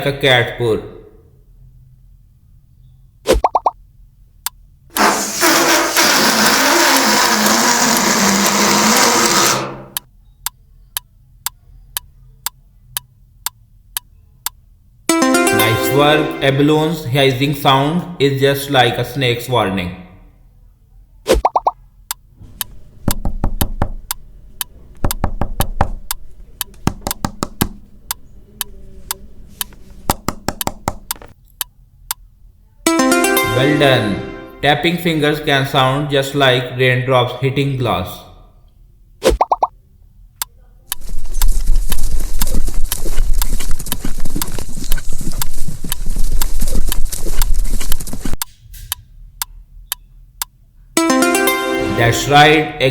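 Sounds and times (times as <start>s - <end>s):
fingertips tapping on hard surface: 22.6s - 24.1s, 25.0s - 27.8s, 29.6s - 31.3s
horse hoofbeats galloping: 41.4s - 48.4s.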